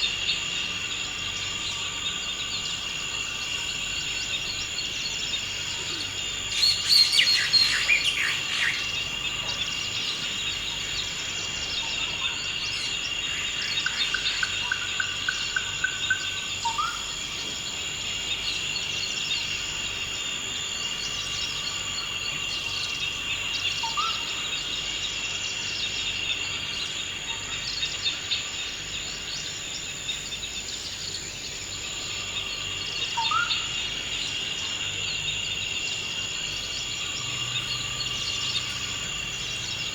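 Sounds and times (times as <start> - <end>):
high insect drone: 0.0 - 39.9
bird calls: 4.2 - 17.6.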